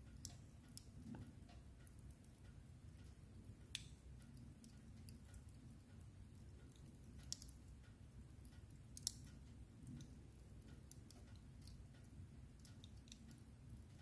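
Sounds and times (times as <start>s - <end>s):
low steady fire rumble: 0.0s - 14.0s
wood fire crackling: 0.0s - 14.0s.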